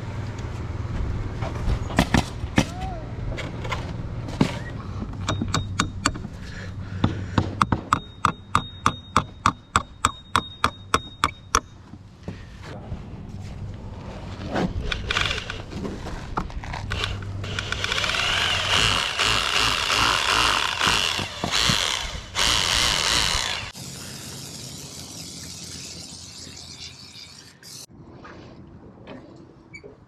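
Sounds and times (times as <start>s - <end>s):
handheld power tool running: 16.9s - 25.7s.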